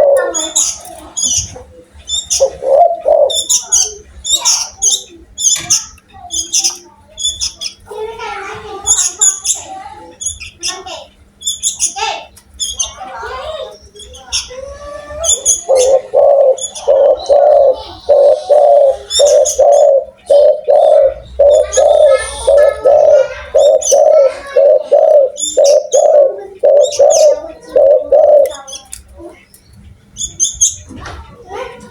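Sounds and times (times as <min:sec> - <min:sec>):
dove cooing: 0:00.0 - 0:05.8, 0:13.0 - 0:29.4
small birds chirping: 0:00.0 - 0:31.9.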